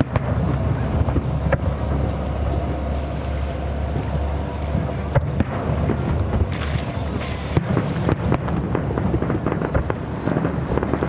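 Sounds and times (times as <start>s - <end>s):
firework bang: 0.0s - 2.1s, 5.1s - 11.0s
low rumble: 0.0s - 11.0s
faint firework pops: 5.1s - 11.0s.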